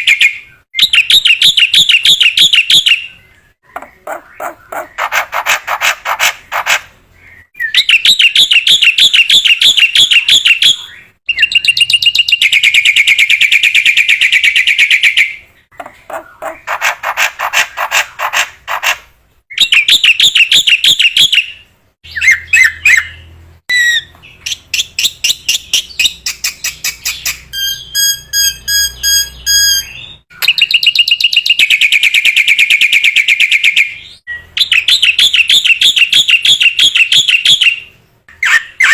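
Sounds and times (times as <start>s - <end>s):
bird chattering trilled song: 0.0s - 38.9s
bird whistled notes: 22.2s - 37.8s.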